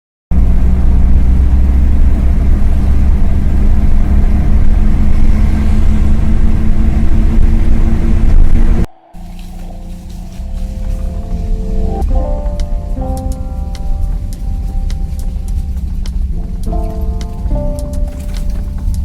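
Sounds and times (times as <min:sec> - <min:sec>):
car engine and road rumble: 0:00.3 - 0:19.0.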